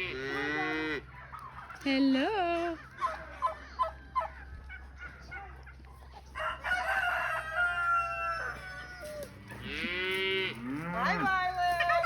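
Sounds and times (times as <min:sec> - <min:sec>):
rooster crowing: 0:06.4 - 0:09.4.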